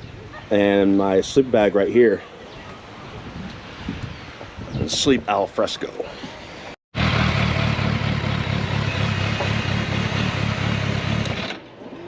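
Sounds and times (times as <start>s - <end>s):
motorcycle engine running: 7.0s - 11.6s.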